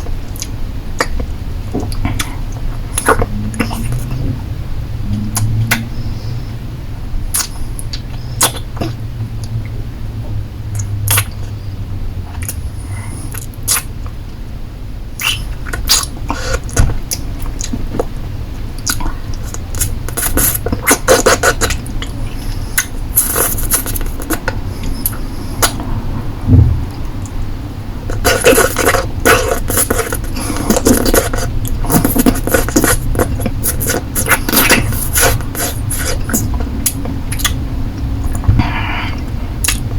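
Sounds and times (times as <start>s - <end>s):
lollipop sucking and licking: 19.4s - 21.8s, 22.8s - 25.8s, 28.1s - 37.6s.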